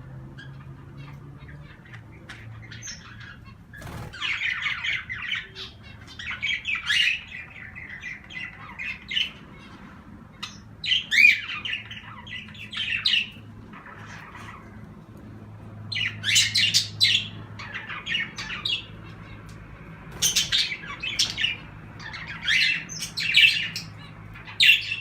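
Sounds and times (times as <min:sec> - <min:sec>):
cage birds chirping and squawking: 0:00.0 - 0:25.0.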